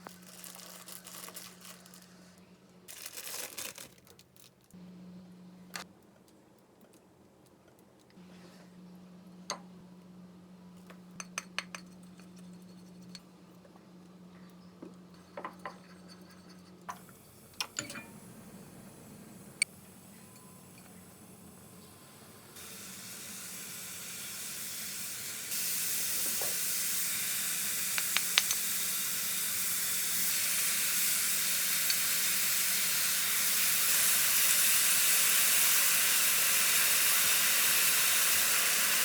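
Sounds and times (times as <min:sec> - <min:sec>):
low steady hum: 0:04.8 - 0:25.5
dishes and utensils clinking: 0:17.6 - 0:18.2.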